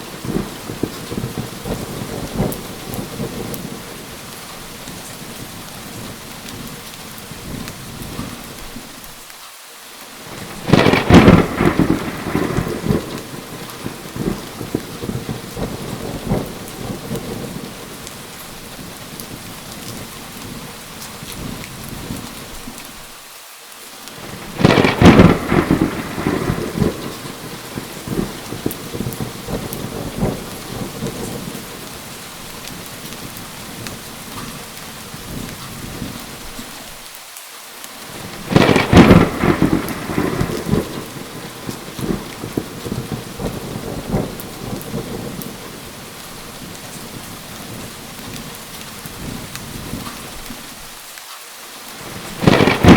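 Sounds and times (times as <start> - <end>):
rolling thunder: 0.0 - 8.5, 10.3 - 22.6, 24.2 - 36.5, 38.1 - 50.4, 52.0 - 52.9
steady rain: 0.0 - 52.9.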